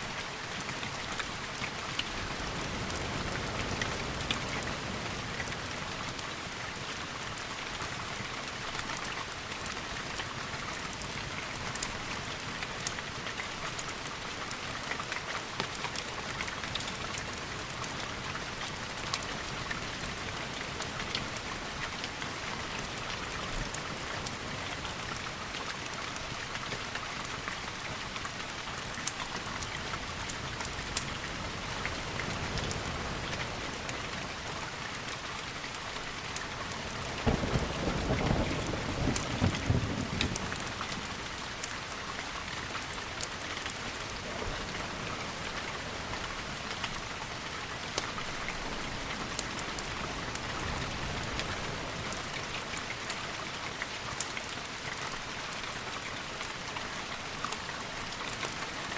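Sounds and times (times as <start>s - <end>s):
rain falling: 0.0s - 58.9s
drip-like ticks: 5.4s - 45.6s, 52.1s - 58.9s.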